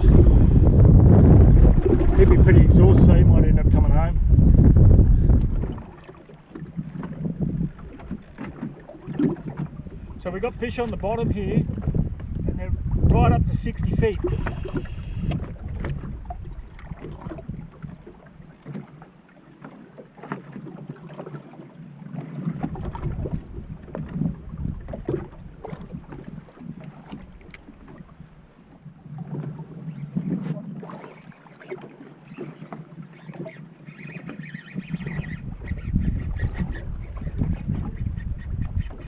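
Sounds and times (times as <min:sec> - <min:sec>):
wind on microphone: 0:00.0 - 0:18.2, 0:22.2 - 0:31.1, 0:34.2 - 0:39.0
water lapping against boat hull: 0:00.0 - 0:39.0.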